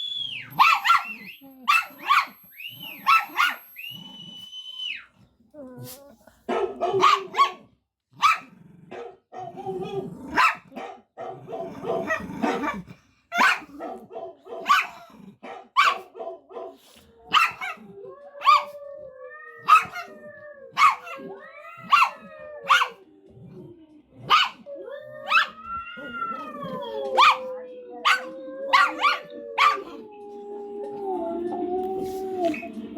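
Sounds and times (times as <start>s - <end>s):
dog barking: 0.6s - 3.7s, 6.5s - 9.6s, 10.3s - 17.8s, 18.4s - 18.8s, 19.6s - 20.1s, 20.7s - 23.0s, 24.2s - 25.6s, 27.2s - 30.0s.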